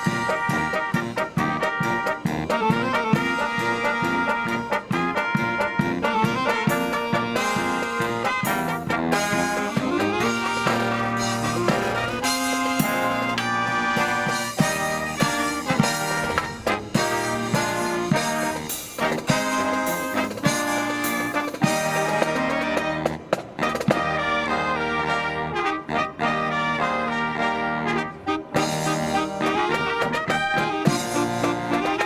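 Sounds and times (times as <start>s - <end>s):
drum strokes: 0.0s - 24.1s, 28.6s - 32.0s
brass band playing: 0.0s - 32.0s.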